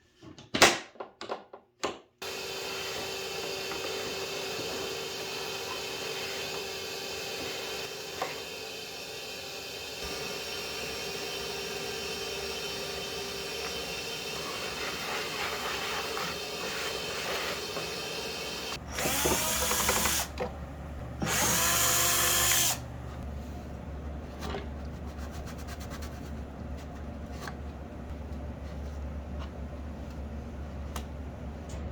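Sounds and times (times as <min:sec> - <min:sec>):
power drill whine: 0:02.2 - 0:14.8, 0:16.3 - 0:20.5, 0:21.2 - 0:23.2.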